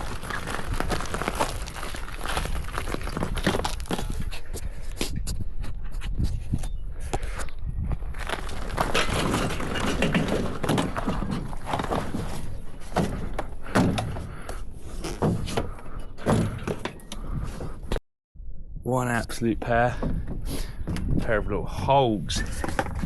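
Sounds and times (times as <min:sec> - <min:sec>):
knocks and thuds of handling: 0:08.8 - 0:17.8.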